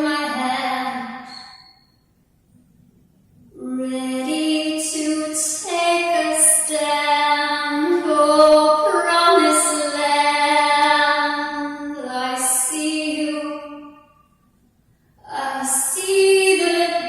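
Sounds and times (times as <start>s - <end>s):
woman singing long held notes: 3.6s - 14.0s, 15.2s - 17.0s.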